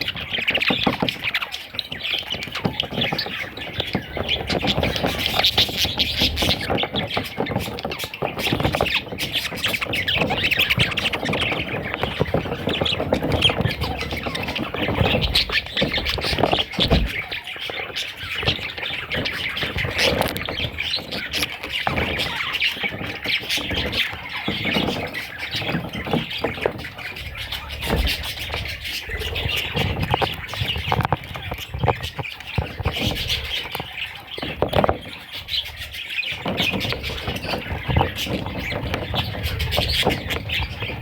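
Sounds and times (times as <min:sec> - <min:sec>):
budgerigar chattering and squawking: 0:00.0 - 0:41.0.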